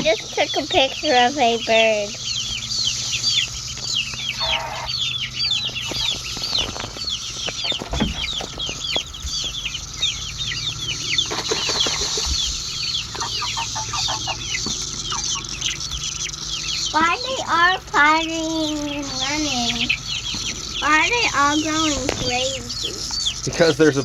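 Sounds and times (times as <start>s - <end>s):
chickens peeping: 0.0s - 24.0s
cicada chorus: 0.0s - 24.0s
dull thumps: 5.7s - 9.6s.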